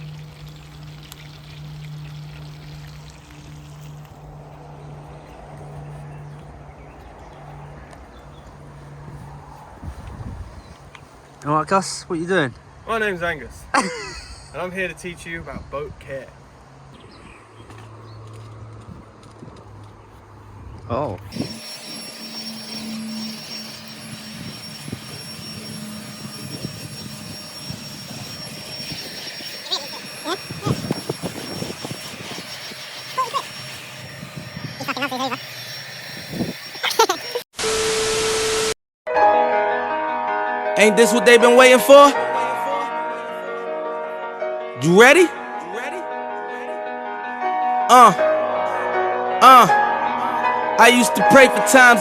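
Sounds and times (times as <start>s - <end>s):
water running: 0.0s - 4.4s
motor humming and whining: 21.3s - 38.7s.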